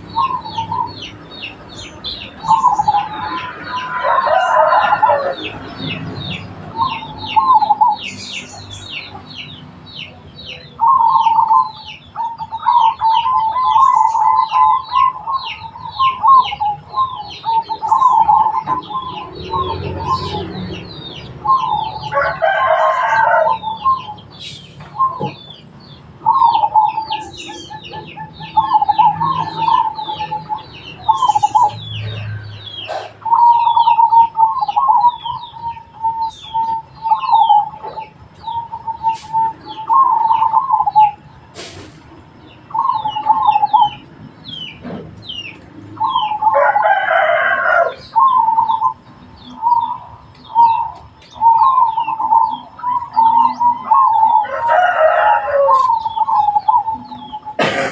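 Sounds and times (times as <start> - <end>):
doves cooing: 0.0 - 57.9
small birds chirping: 0.0 - 57.9
rooster crowing: 2.4 - 5.8, 21.4 - 24.1, 46.3 - 48.4, 53.8 - 57.2.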